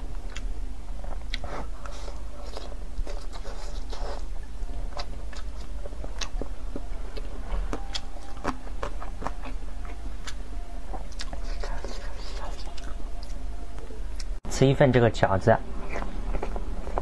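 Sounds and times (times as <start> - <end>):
person biting and chewing: 1.1 - 6.8, 7.7 - 13.4, 15.8 - 17.0.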